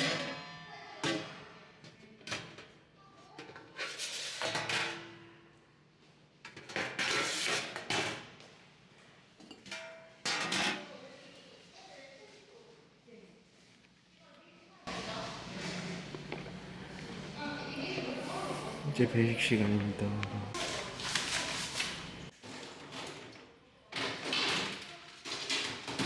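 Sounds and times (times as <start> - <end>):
dishes and pots clattering: 0.0 - 2.8, 3.4 - 5.5, 9.4 - 10.9.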